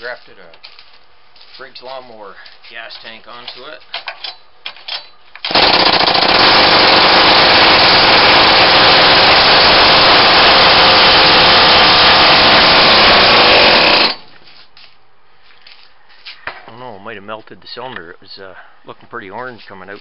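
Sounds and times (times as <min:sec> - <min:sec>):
two-stroke trimmer engine running: 0:05.5 - 0:14.3.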